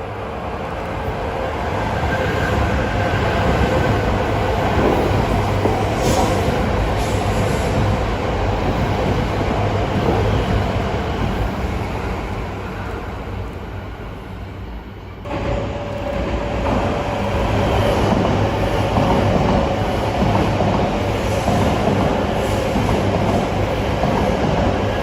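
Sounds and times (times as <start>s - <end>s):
train running rumble: 0.0s - 25.0s.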